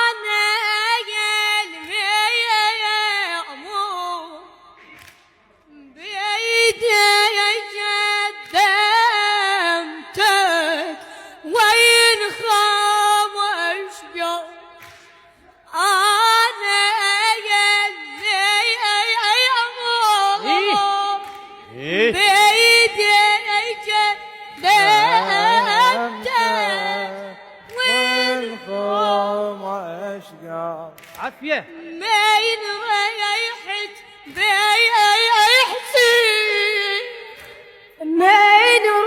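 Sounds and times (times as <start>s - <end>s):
person singing unaccompanied: 16.1s - 30.4s.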